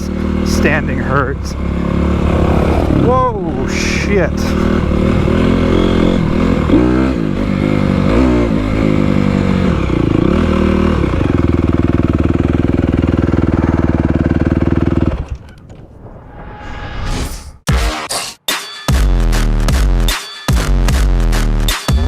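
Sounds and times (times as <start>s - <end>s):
dirt bike engine revving: 0.0s - 15.4s.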